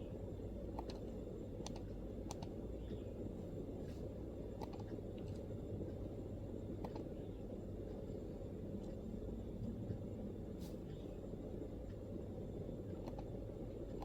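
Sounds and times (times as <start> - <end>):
low background rumble: 0.0 - 14.0
laptop keyboard keystrokes: 0.7 - 2.6, 4.5 - 5.5, 6.8 - 7.2, 12.9 - 14.0.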